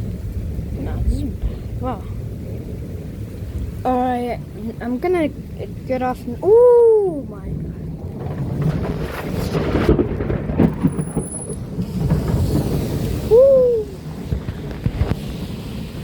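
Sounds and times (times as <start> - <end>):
steady rain: 0.0 - 16.0
thunder rumbling: 0.0 - 16.0
thunder cracks: 7.3 - 16.0.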